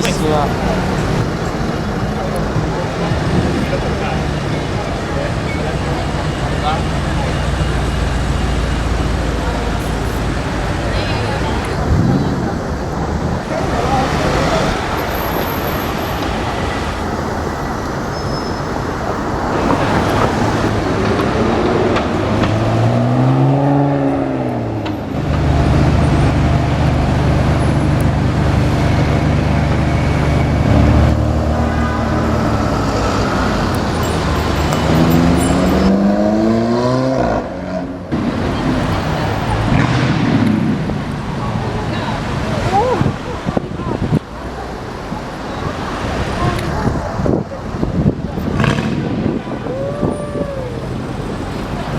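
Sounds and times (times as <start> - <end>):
street traffic: 0.0 - 51.9
engine accelerating hard: 19.5 - 51.9
engine revving: 19.6 - 41.4, 48.4 - 49.5.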